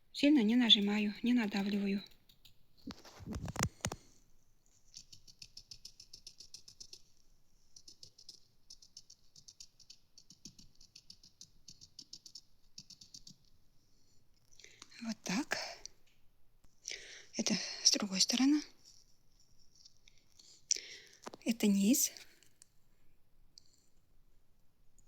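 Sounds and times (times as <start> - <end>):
sponge dabbing paint: 4.8 - 13.7.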